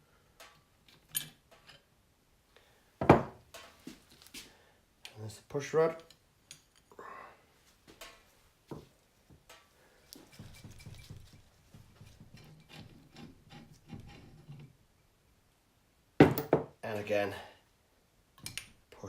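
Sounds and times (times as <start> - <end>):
metal parts clicking and rubbing: 0.4 - 1.9.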